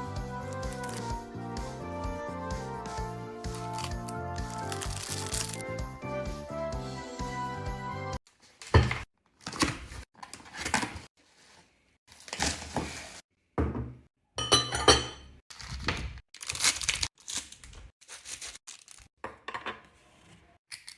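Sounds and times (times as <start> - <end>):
plastic packaging crinkling and tearing: 3.6 - 5.6, 15.5 - 19.1.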